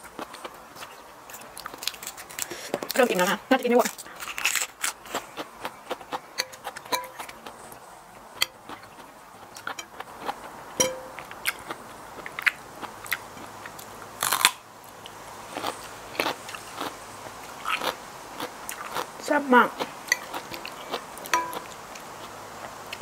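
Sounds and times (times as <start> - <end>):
chewing and crunching: 0.0 - 23.0
spoon clicking on a plate: 6.4 - 7.3, 10.8 - 11.3, 21.3 - 21.7.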